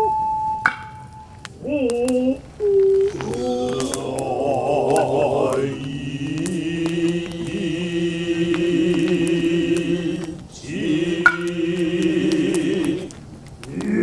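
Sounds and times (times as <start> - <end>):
man chanting: 3.1 - 14.0.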